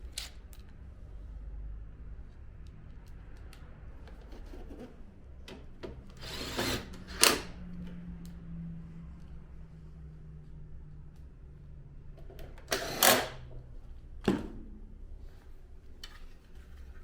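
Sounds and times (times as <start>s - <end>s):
power screwdriver running: 6.2s - 7.5s, 12.6s - 13.4s.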